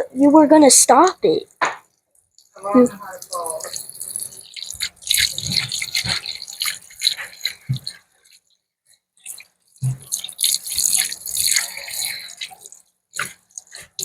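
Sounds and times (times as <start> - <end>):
tap water splashing into sink: 3.2 - 8.0, 13.2 - 14.0.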